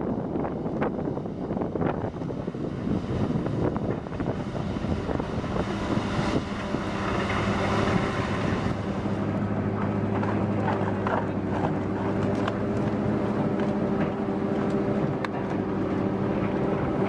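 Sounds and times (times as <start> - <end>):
wood chipper engine running: 3.6 - 17.0.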